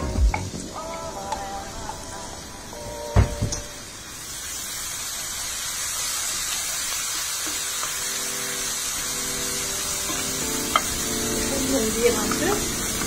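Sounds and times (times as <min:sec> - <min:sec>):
shallots sizzling in butter: 0:00.0 - 0:13.0.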